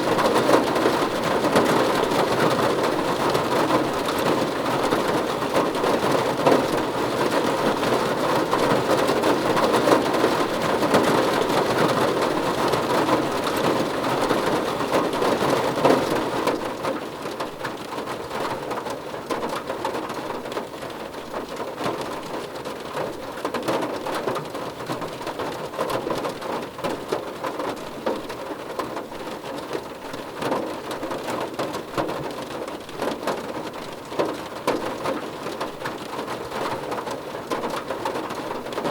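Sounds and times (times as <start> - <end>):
rain drumming on car roof: 0.0 - 38.9.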